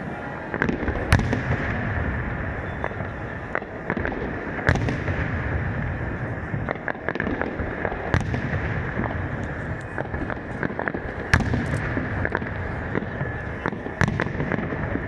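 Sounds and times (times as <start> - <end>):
fireworks rumble and crackle: 0.0 - 15.0
fireworks shells bursting: 6.0 - 15.0.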